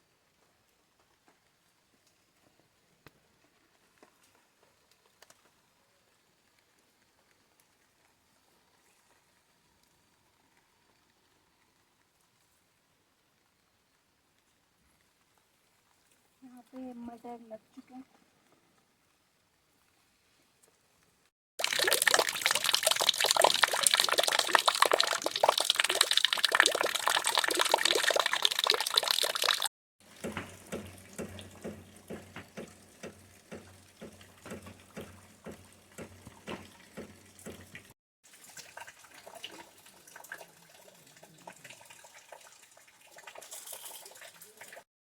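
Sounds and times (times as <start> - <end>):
faint patter: 13.4 - 18.9
water pouring and splashing: 21.6 - 44.9
regular taps: 30.1 - 37.9.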